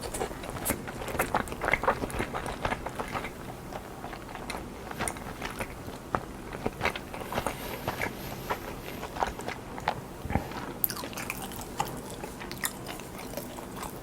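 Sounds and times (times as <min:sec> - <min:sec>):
person chewing: 0:00.0 - 0:14.0.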